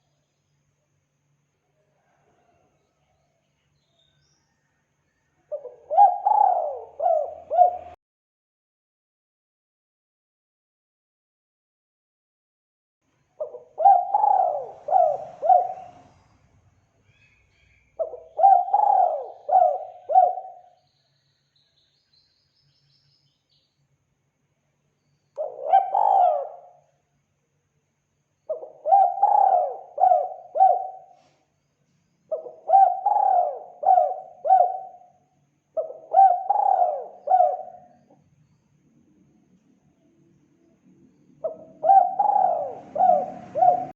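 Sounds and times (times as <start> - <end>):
dove cooing: 5.5 - 8.0, 13.4 - 16.2, 18.0 - 20.8, 25.4 - 26.8, 28.5 - 31.3, 32.3 - 35.1, 35.8 - 38.1, 41.4 - 43.9.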